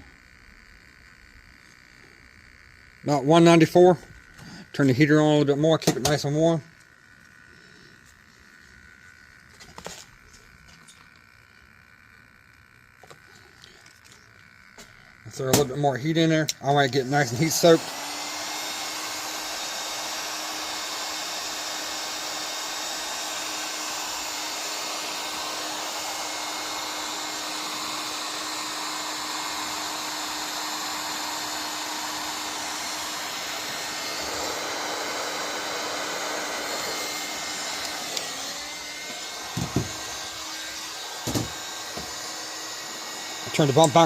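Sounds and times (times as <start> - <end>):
hot-air heater blowing and humming: 0.0 - 44.0.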